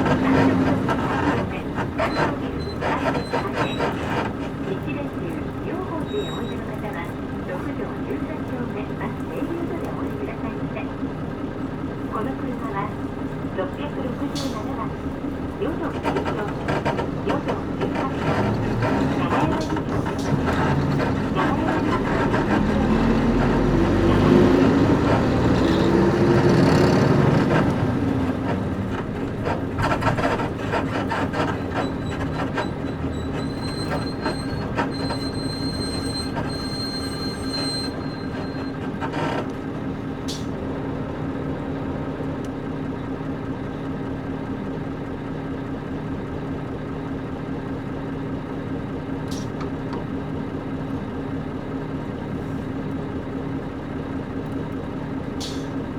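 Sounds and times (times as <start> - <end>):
creaks and rattles: 0.0 - 7.1, 14.4 - 40.6
bus diesel engine hum: 0.0 - 55.9.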